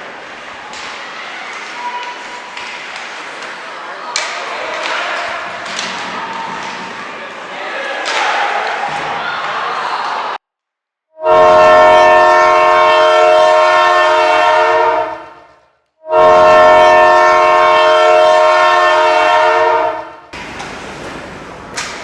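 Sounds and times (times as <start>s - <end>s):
arena horn blasts: 11.2s - 15.3s, 16.0s - 22.0s.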